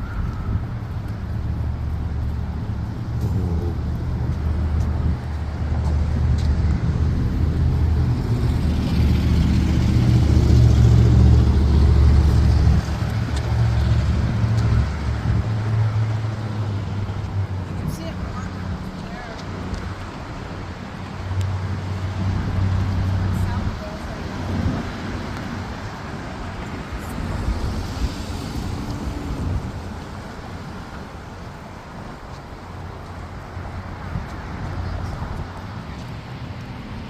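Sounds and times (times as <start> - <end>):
traffic engine rumble: 0.0 - 37.0.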